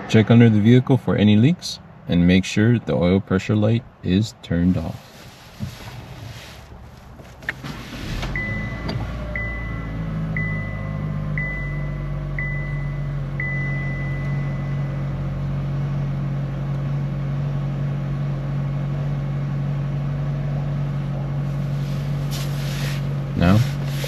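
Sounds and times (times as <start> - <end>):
car engine idling: 4.7 - 24.0
high beep: 8.4 - 15.2.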